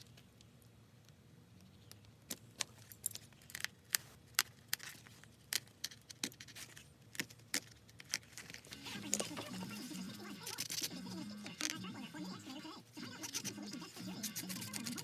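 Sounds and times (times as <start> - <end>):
hand tools clicking on leather: 1.9 - 8.7.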